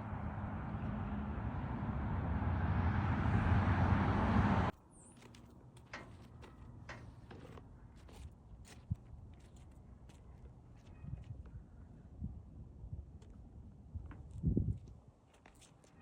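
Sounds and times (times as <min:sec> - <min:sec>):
motor vehicle running: 0:00.0 - 0:04.7.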